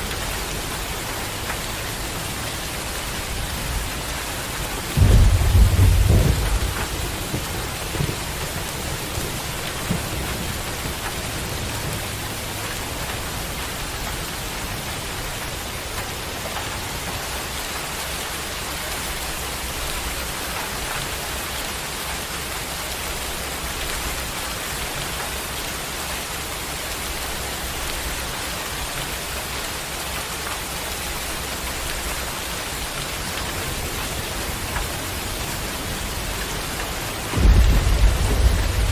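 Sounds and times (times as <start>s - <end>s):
heavy rain pouring: 0.0s - 38.9s
loud low rumble: 5.0s - 7.6s, 37.3s - 38.9s.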